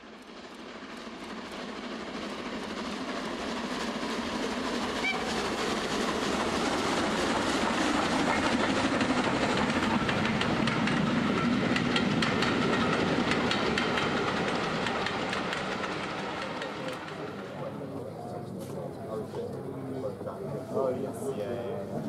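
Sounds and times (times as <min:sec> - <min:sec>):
train rolling on rails: 0:00.0 - 0:22.0
wheels clicking over rail joints: 0:07.4 - 0:17.4.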